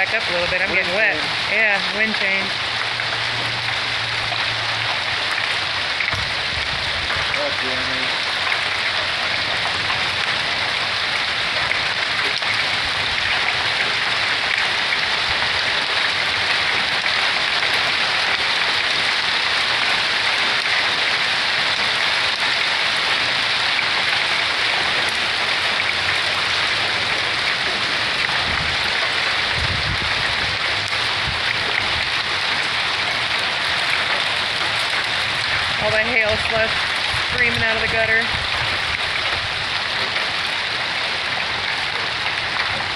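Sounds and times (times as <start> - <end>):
hail and rain pelting down: 0.0 - 42.9.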